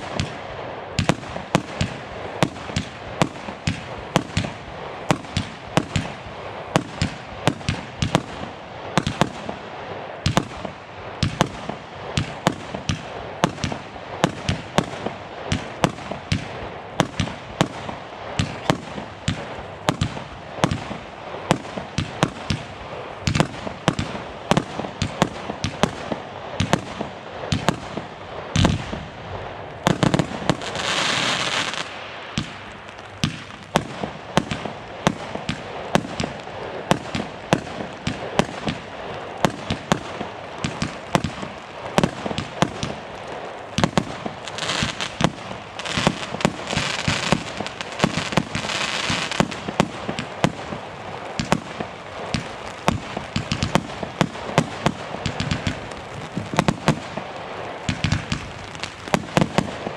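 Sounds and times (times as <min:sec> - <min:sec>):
firework bangs: 0:00.0 - 0:59.9
firework hissing: 0:29.8 - 0:59.9.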